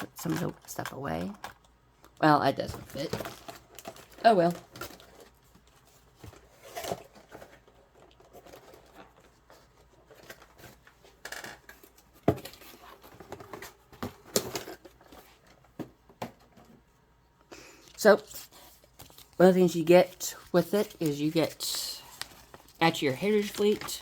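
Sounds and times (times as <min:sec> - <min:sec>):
packaging being handled: 0:18.2 - 0:24.0.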